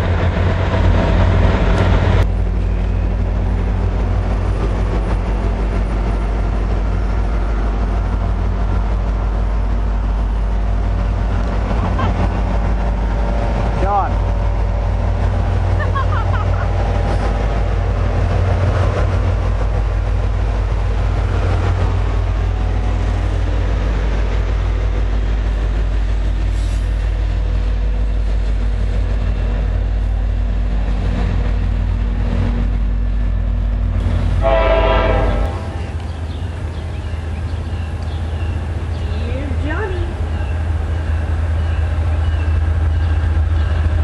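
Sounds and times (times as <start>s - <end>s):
diesel locomotive rumble: 0.0s - 44.0s
train horn blast: 34.4s - 36.0s.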